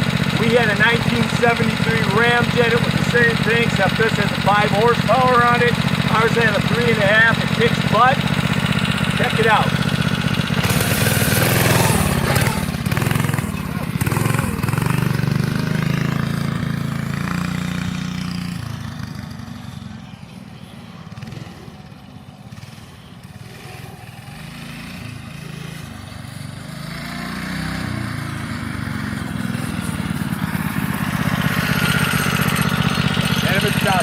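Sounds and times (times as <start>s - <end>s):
minibike engine running: 0.0s - 34.0s.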